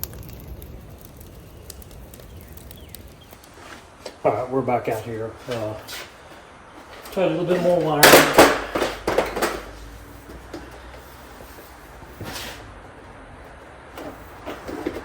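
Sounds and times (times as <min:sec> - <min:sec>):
objects knocking and clattering: 0:07.8 - 0:10.8
short scrape: 0:11.0 - 0:12.7.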